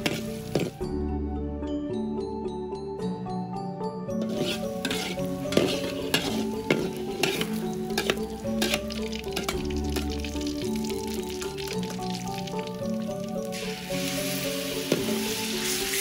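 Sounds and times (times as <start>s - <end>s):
food sizzling in hot oil: 0.0s - 0.8s, 4.2s - 16.0s
metal utensils scraping a wok: 0.0s - 0.8s, 4.2s - 10.9s, 13.9s - 16.0s.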